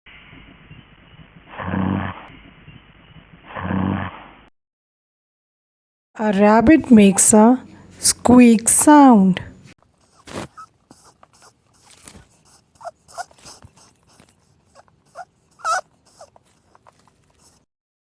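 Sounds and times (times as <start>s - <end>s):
rabbit squeaking: 10.0s - 17.6s.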